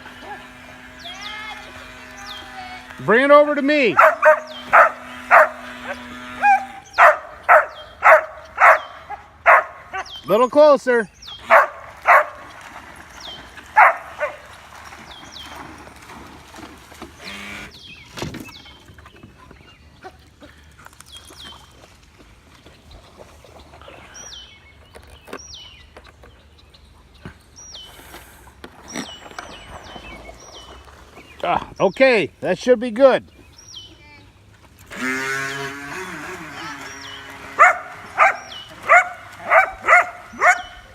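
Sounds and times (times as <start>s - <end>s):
dog barking: 4.0s - 10.1s, 11.4s - 12.4s, 13.8s - 14.4s, 37.6s - 40.8s.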